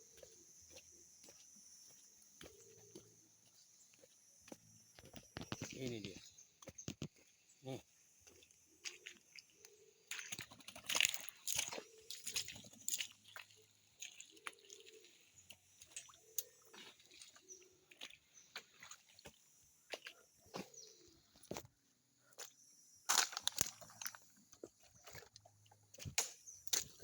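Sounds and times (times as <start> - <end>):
leaves and twigs rustling: 23.1 - 24.3.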